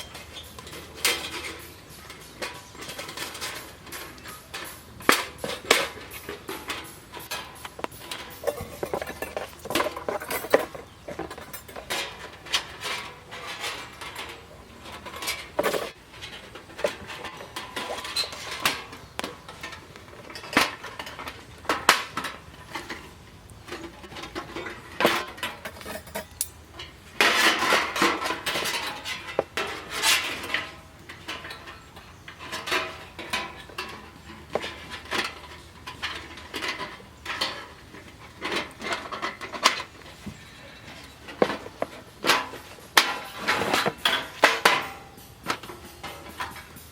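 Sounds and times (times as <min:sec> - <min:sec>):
metal gear clinking and clattering: 0:00.0 - 0:12.2
scraping and rustling: 0:00.0 - 0:46.9.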